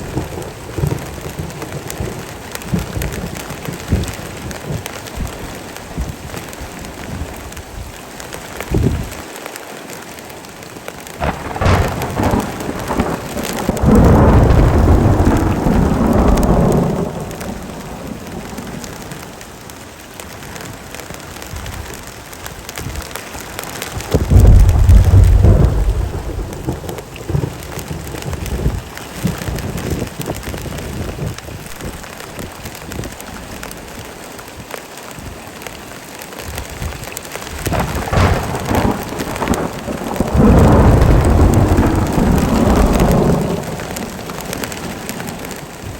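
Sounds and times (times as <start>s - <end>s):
thunder rolling: 0.0s - 7.7s, 11.2s - 19.4s, 23.8s - 33.7s, 36.6s - 45.9s
heavy rain falling: 0.0s - 45.9s.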